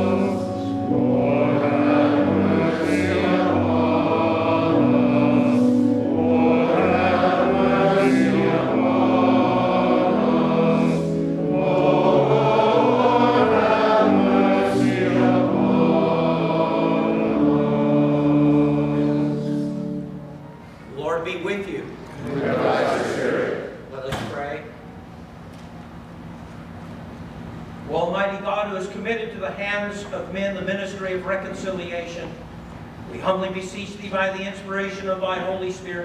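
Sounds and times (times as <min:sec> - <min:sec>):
choir singing a slow chant: 0:00.0 - 0:20.3, 0:22.2 - 0:23.9.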